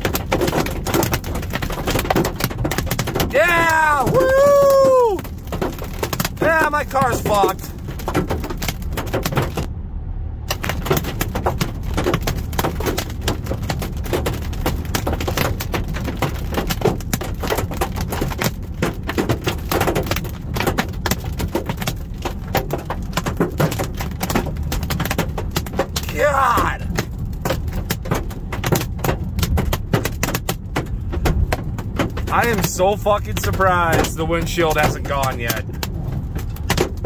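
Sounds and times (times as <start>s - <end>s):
hailstones pelting car roof: 0.0s - 9.7s, 10.5s - 37.0s
steady low rumble: 0.0s - 37.0s.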